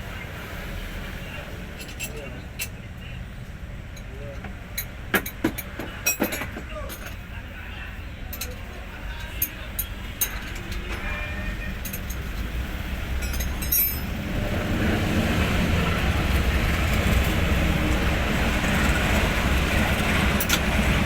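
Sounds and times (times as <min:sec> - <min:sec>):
truck diesel engine rumble: 0:00.0 - 0:21.0
light metallic clinks: 0:13.2 - 0:14.1.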